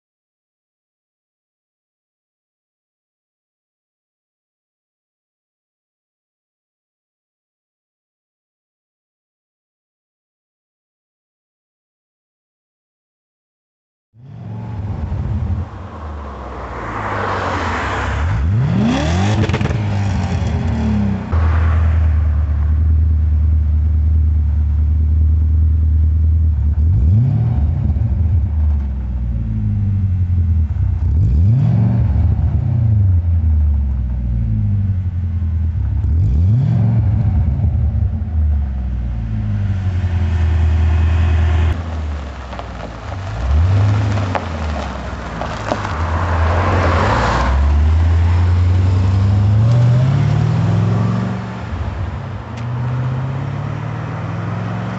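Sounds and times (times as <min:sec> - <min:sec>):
car engine idling and revving: 0:14.2 - 0:54.9.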